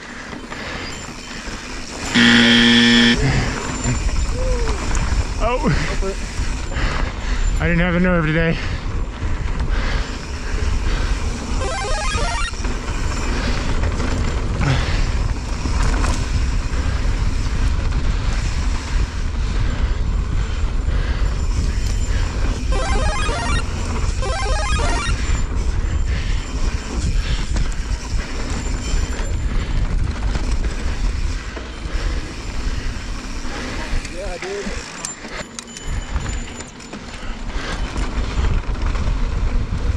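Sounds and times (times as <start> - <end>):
bike rattling: 0.0 - 2.2, 3.2 - 11.6, 12.5 - 22.7, 25.1 - 39.9
warbling tones: 11.6 - 12.5, 22.7 - 23.6, 24.2 - 25.1
bike tyres rolling over dirt: 12.5 - 22.7, 25.1 - 34.9, 37.0 - 39.9.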